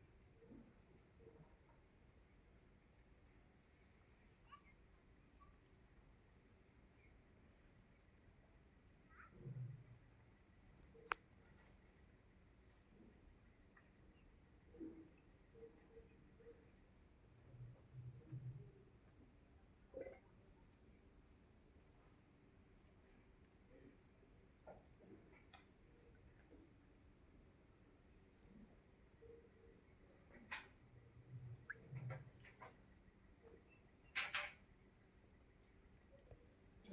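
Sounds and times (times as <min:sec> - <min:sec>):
night insects trilling: 0:08.8 - 0:36.9.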